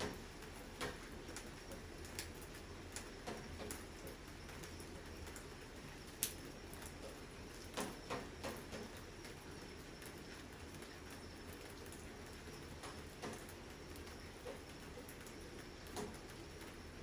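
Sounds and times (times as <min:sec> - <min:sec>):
rain hiss: 0:00.0 - 0:17.0.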